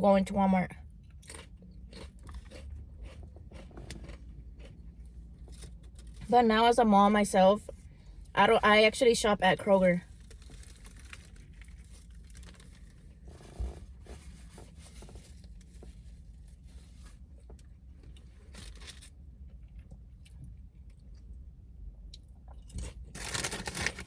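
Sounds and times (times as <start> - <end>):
chewing: 1.0 - 6.2
sandwich paper rustling: 10.1 - 17.1, 18.4 - 19.1, 22.8 - 24.0.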